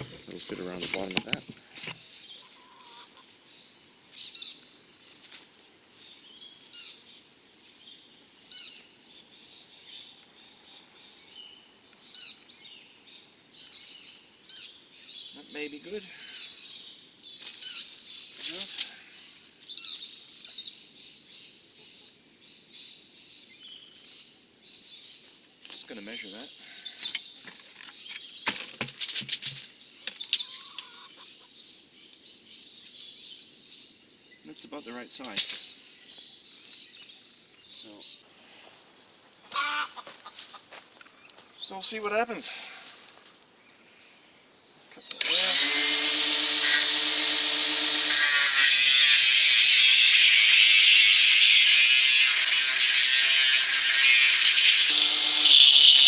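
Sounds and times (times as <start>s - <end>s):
small birds chirping: 0.0s - 28.5s.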